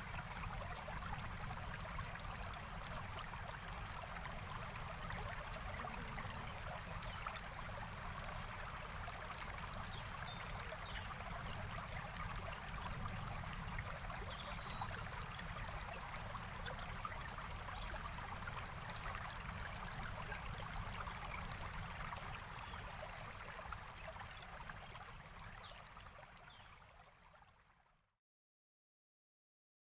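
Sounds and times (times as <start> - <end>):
stream flowing: 2.1 - 24.8.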